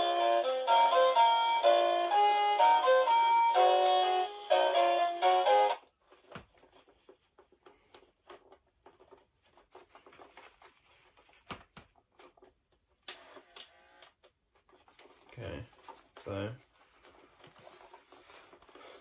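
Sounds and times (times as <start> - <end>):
toy tune: 0.0 - 5.8.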